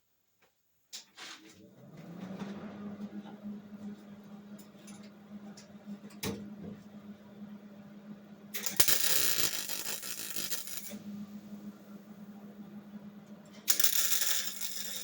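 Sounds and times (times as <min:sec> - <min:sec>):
steady low hum: 0:02.6 - 0:15.0
welding arc noise: 0:08.5 - 0:11.1, 0:13.6 - 0:15.0.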